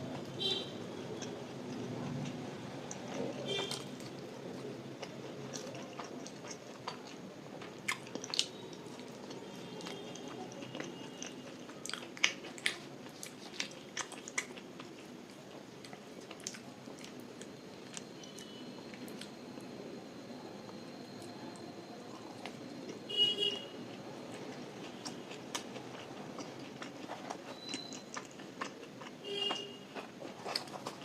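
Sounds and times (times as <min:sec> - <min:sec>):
close chewing: 0:01.2 - 0:18.4, 0:24.2 - 0:31.0.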